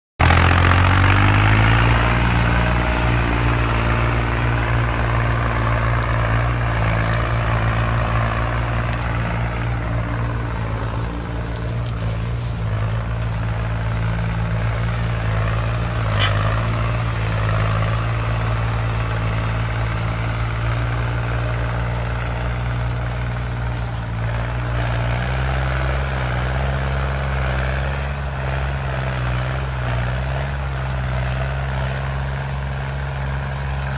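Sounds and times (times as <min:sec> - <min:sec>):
tractor diesel engine running: 0:00.2 - 0:33.9.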